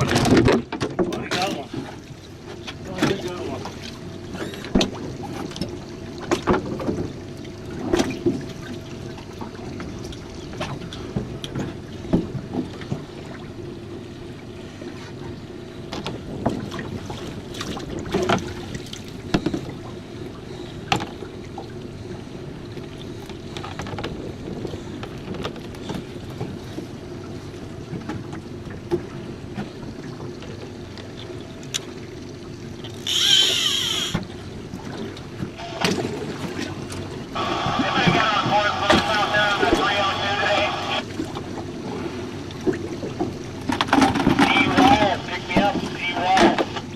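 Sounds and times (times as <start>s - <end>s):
knocks and clicks on boat: 0.0s - 13.6s, 14.2s - 40.1s, 41.1s - 46.9s
steady hum: 28.5s - 43.7s.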